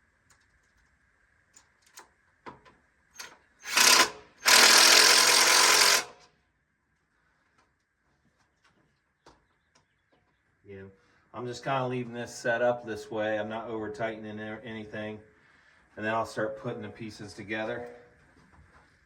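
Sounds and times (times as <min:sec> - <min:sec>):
cordless power drill driving screw: 0:03.2 - 0:06.3.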